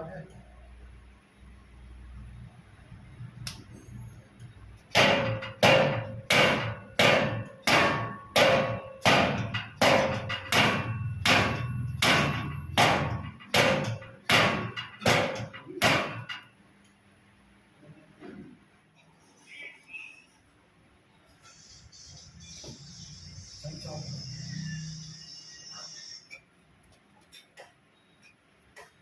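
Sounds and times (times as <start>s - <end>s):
hard blows with ringing tone: 5.1s - 14.8s.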